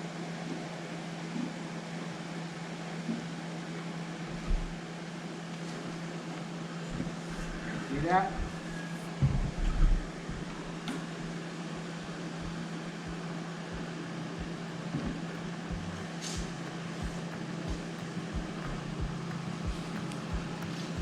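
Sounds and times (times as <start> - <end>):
steady mechanical hum: 0.0 - 21.0
soft low bumps: 12.0 - 21.0.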